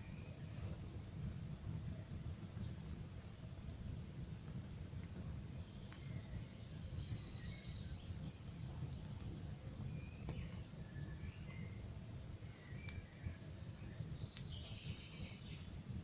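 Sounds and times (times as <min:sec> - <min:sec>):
campfire rumbling: 0:00.0 - 0:16.0
faint fire crackles: 0:00.0 - 0:16.0
songbird chirping: 0:04.8 - 0:11.8, 0:12.4 - 0:16.0.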